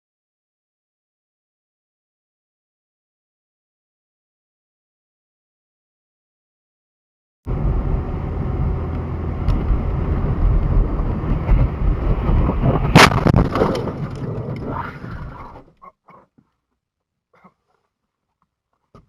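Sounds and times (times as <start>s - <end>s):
car road and engine noise: 7.5s - 14.0s
loud crash impact: 12.8s - 14.2s.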